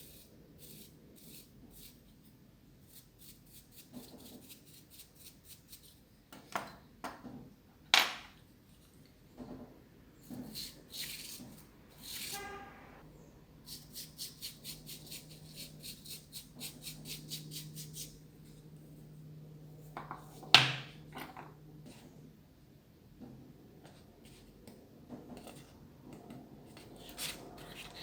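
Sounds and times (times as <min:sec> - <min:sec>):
paintbrush scrubbing plastic: 0:00.0 - 0:02.1, 0:02.9 - 0:06.0, 0:13.7 - 0:18.2.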